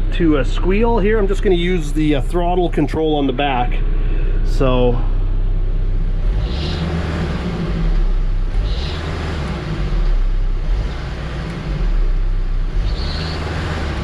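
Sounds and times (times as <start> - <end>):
diesel engine revving: 0.0 - 14.0
drive belt squealing: 6.4 - 7.8, 8.5 - 10.0, 12.8 - 14.0.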